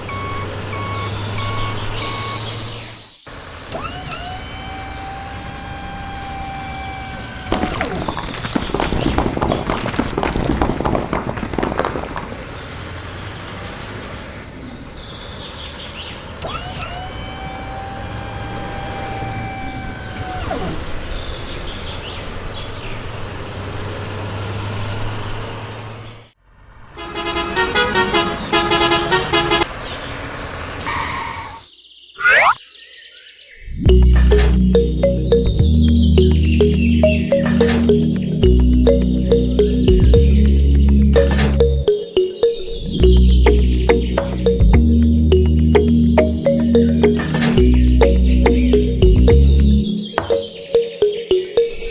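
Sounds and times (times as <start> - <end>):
vehicle horn: 27.0 - 29.6
fast warbling tone: 33.9 - 51.9.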